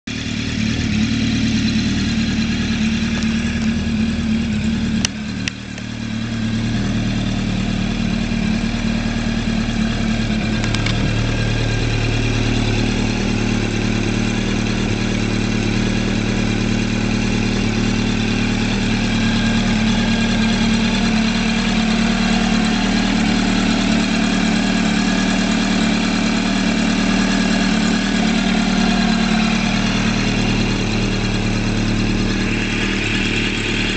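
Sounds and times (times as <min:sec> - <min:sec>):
motorcycle engine idling: 0:00.0 - 0:33.9
sharp clicks: 0:10.6 - 0:11.1.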